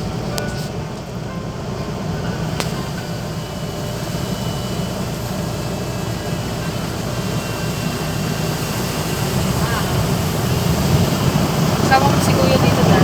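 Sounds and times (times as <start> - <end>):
car wash machinery running: 0.0 - 13.0.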